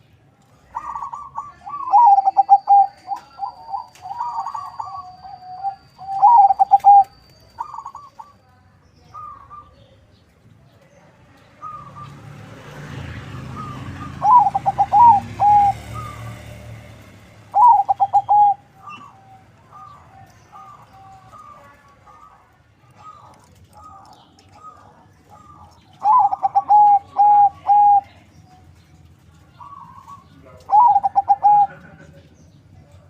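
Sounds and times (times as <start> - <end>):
dove cooing: 0.6 - 8.4, 13.6 - 16.6, 17.5 - 28.3, 29.5 - 33.0.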